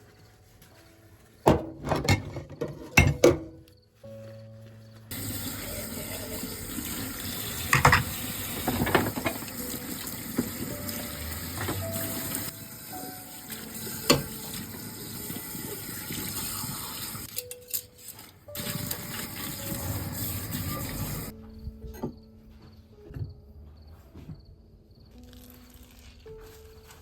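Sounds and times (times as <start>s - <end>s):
water running from a tap: 5.1s - 17.3s, 18.6s - 21.3s.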